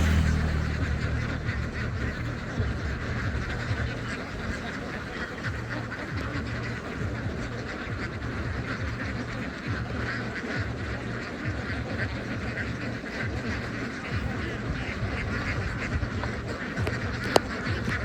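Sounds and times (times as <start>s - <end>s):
steady low rumble: 0.0s - 11.2s
ducks quacking: 0.0s - 18.0s.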